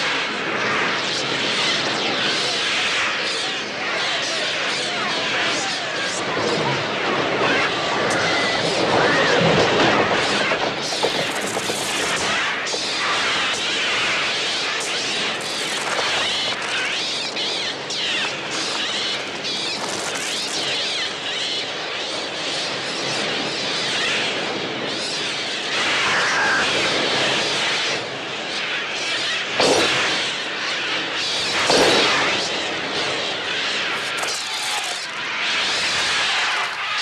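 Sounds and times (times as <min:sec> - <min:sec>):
shrieking gull cries: 0:25.8 - 0:27.2.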